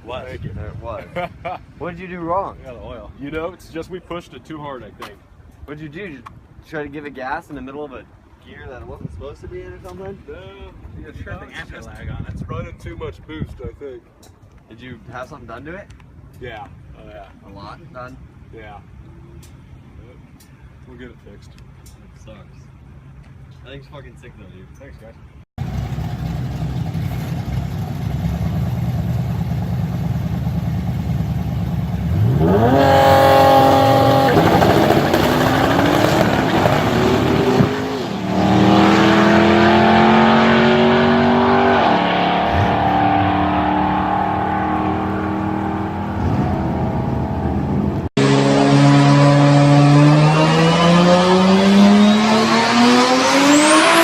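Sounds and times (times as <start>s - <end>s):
car engine accelerating hard: 25.6s - 54.0s.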